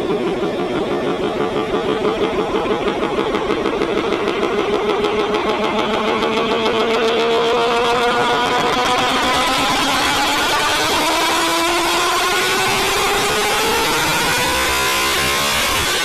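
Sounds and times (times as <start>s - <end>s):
car engine lumpy idle: 0.0s - 10.8s.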